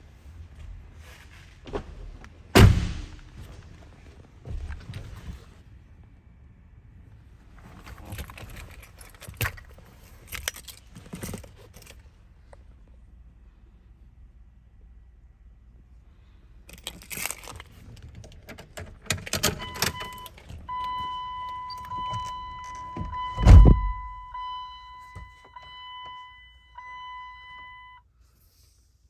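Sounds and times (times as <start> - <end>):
heavy thump: 2.6 - 3.6, 23.0 - 24.3
keys jangling: 7.8 - 12.0, 16.7 - 24.0
electronic warning chime: 19.6 - 28.0.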